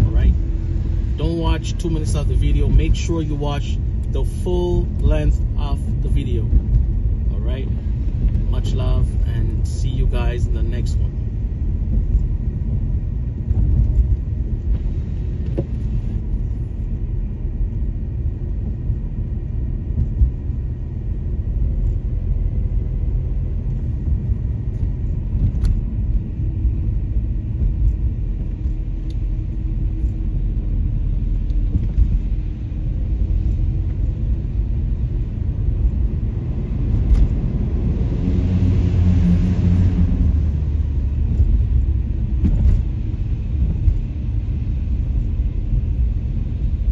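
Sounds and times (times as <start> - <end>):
car road noise inside cabin: 0.0 - 46.9.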